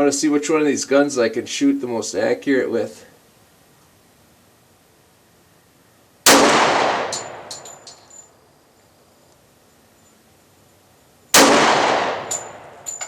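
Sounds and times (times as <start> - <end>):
pistol shots echoing: 6.3 - 7.8, 11.4 - 12.9
small metallic tinks: 6.9 - 11.4, 12.1 - 13.0.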